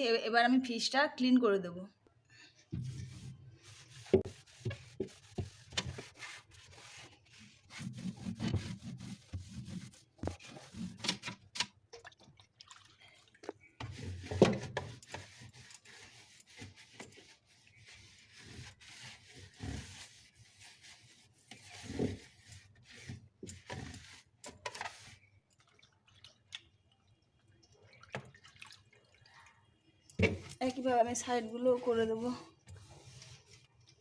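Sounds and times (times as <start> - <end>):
water splashing and dripping: 11.4 - 14.8, 25.2 - 30.6.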